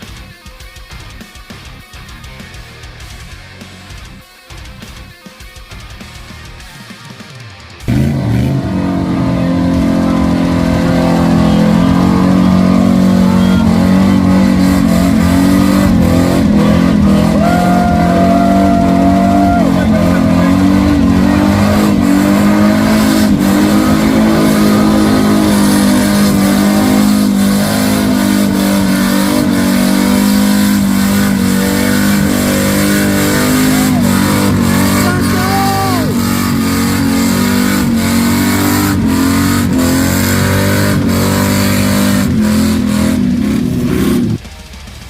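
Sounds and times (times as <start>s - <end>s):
truck engine at high revs: 7.7s - 45.0s.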